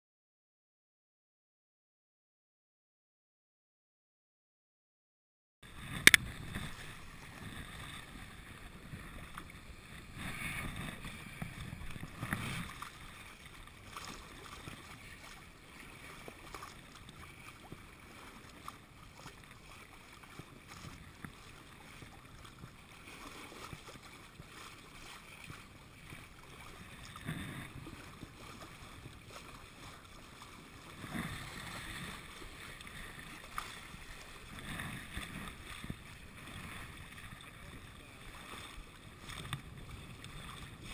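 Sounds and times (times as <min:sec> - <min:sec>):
water washing along boat hull: 0:05.6 - 0:40.9
wind on microphone: 0:05.7 - 0:15.4, 0:30.8 - 0:40.9.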